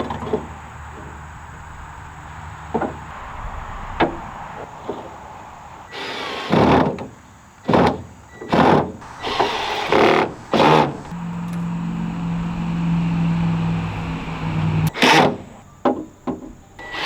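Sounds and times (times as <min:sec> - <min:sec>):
small motor humming: 0:09.0 - 0:15.1.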